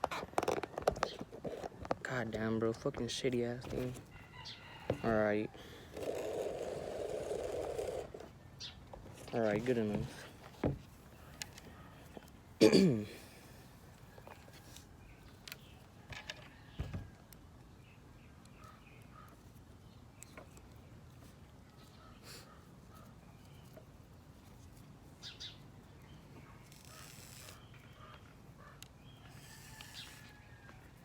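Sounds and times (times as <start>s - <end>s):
faint chicken calls: 3.8s - 8.8s, 13.2s - 17.8s, 21.6s - 23.7s, 26.3s - 31.0s.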